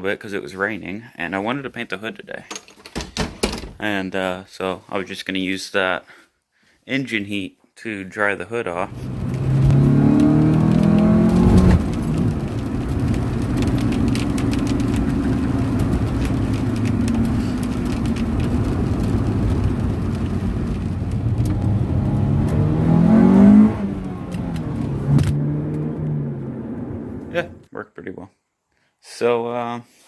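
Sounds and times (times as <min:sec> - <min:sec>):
car engine running: 0:08.9 - 0:27.6.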